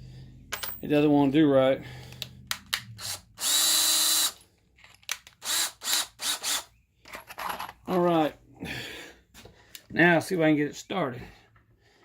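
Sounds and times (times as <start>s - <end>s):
cordless drill spinning: 2.8s - 4.4s, 5.1s - 6.7s.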